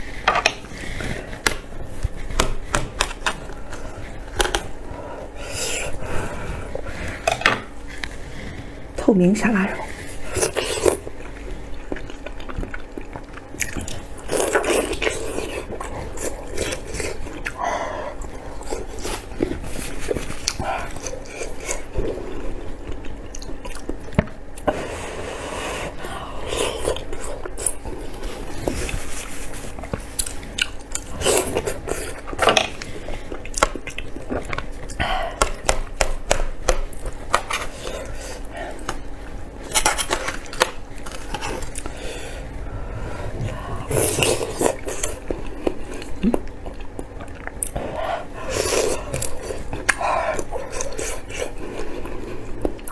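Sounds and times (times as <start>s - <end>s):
person chewing meat: 10.1s - 24.7s, 26.1s - 52.9s.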